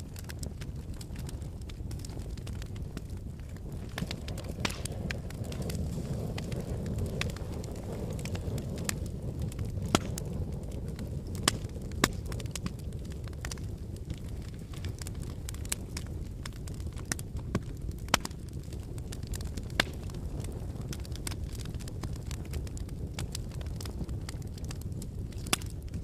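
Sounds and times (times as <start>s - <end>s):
fire crackling and popping: 0.0s - 26.0s
low rumble of flames: 0.0s - 26.0s.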